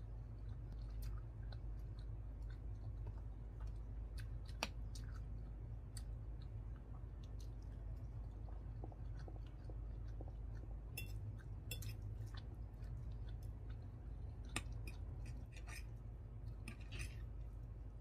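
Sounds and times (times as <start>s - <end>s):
wet chewing clicks and smacks: 0.0s - 17.7s
metal fork against ceramic plate: 11.0s - 12.0s.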